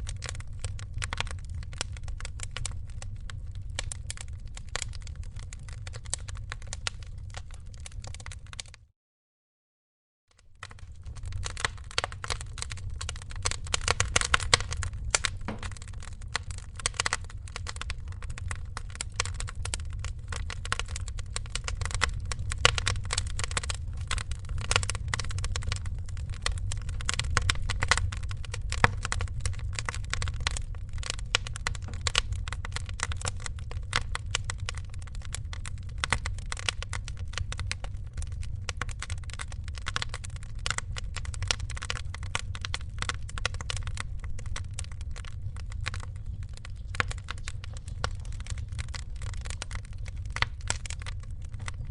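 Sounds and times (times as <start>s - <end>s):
wood fire crackling: 0.0s - 8.8s, 10.4s - 51.9s
low rumble: 10.7s - 36.1s.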